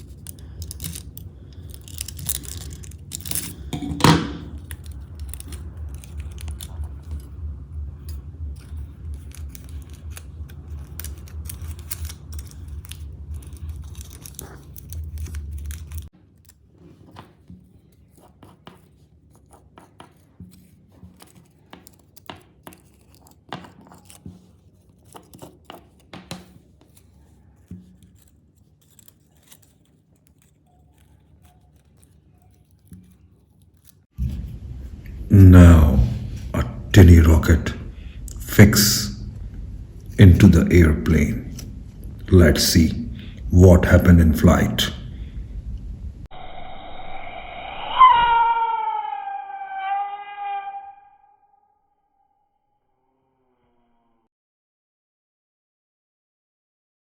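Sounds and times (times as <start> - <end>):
aluminium foil and paper crinkling: 0.0 - 3.8, 4.5 - 7.4, 8.1 - 34.1
steady low hum: 0.0 - 16.1, 34.2 - 51.0.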